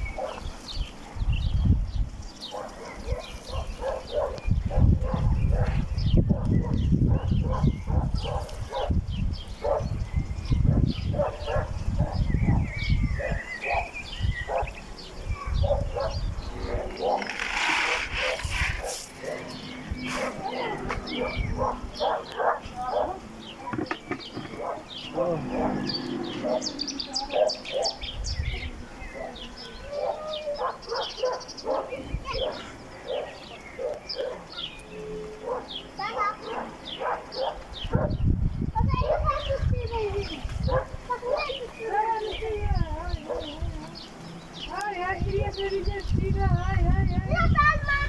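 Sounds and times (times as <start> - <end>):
birds chirping: 0.0 - 48.0
dog yipping: 20.2 - 23.2, 29.9 - 34.7, 35.4 - 38.2, 40.7 - 41.6.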